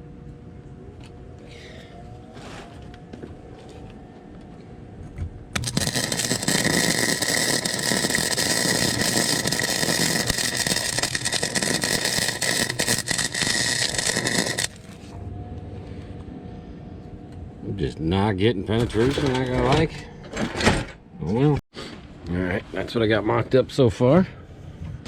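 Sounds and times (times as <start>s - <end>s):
welding arc crackling: 5.6s - 15.1s.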